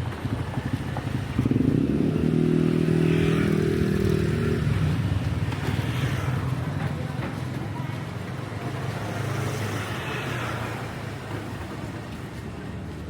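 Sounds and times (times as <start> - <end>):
motorcycle passing by: 0.0 - 6.7
street traffic noise: 0.0 - 13.0.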